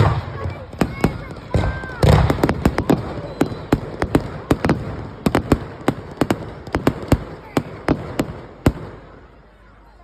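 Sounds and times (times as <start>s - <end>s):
fireworks crackling and popping: 0.0s - 9.5s.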